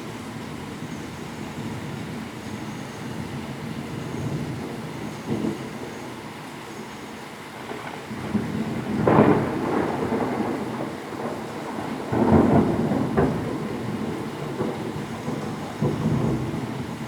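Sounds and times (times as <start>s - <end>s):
heavy rain: 0.0s - 17.0s
thunder rumbling: 7.6s - 17.0s.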